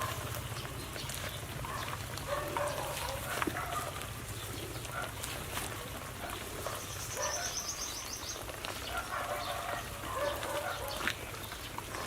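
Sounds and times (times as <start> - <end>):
lower bird calls: 6.4 - 12.0.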